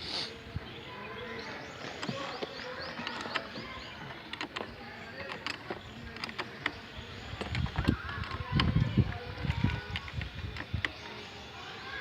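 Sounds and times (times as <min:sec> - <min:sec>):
hand tools clicking and tapping: 0:01.8 - 0:11.0.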